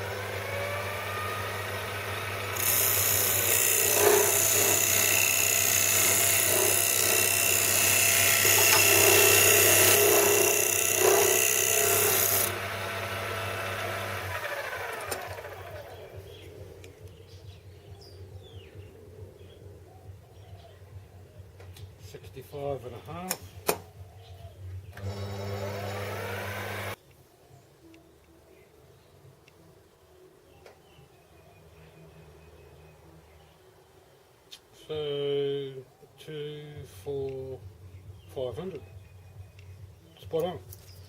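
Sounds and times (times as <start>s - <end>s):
lathe tool cutting metal: 0.0s - 16.0s, 25.0s - 27.0s
lathe motor hum: 0.0s - 16.4s, 25.0s - 27.0s
motor winding down whine: 0.0s - 16.4s, 24.9s - 27.0s.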